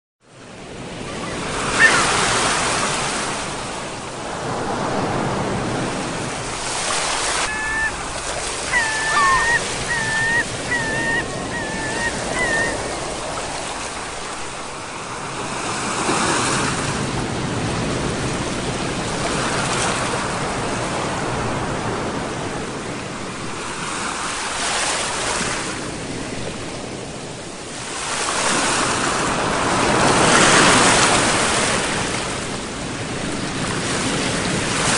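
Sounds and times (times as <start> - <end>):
sea waves breaking: 0.3 - 27.0, 27.8 - 34.9
bird calling short notes: 1.7 - 2.2, 7.3 - 13.2.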